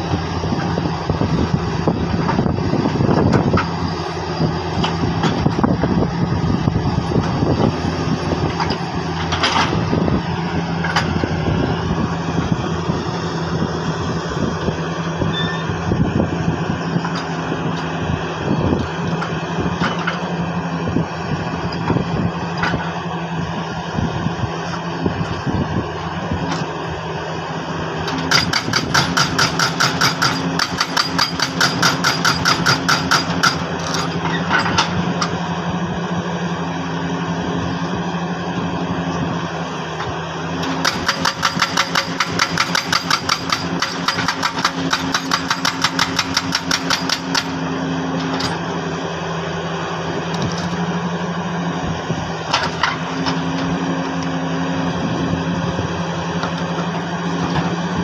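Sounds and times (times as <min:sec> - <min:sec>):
engine running: 0:00.0 - 0:58.0
jackhammer breaking rock: 0:28.1 - 0:34.0, 0:40.6 - 0:47.6.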